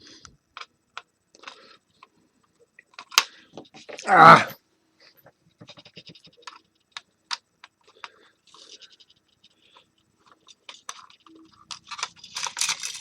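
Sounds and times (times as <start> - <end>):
plastic parts clicking and scraping: 0.5 - 2.2, 2.8 - 4.1, 5.6 - 13.0.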